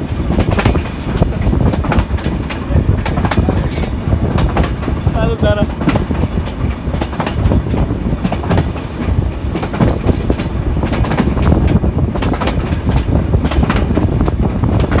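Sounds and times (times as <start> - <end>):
train rumbling inside carriage: 0.0 - 15.0
wheels clicking on rails: 0.0 - 15.0.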